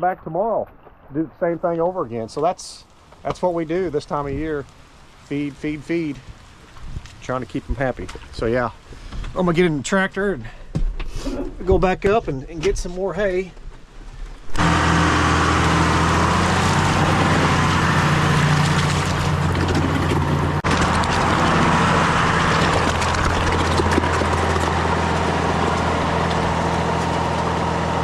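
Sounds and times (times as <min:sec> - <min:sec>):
tractor diesel engine running: 0:14.6 - 0:28.0.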